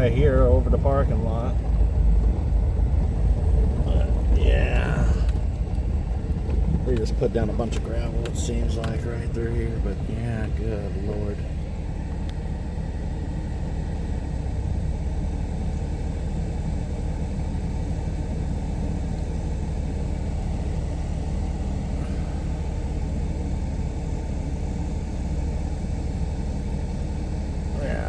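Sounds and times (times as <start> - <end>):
car engine and tyres rumbling: 0.0 - 28.0.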